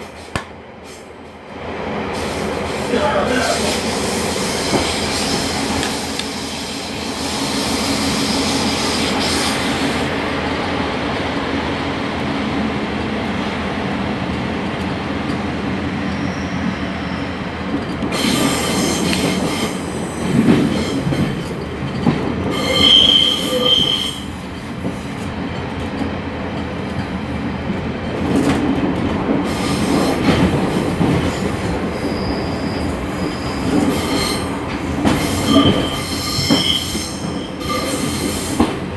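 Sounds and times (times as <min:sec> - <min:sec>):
train rumble and rattle: 0:00.0 - 0:38.9
wheel squeals: 0:22.5 - 0:24.3, 0:35.2 - 0:38.4.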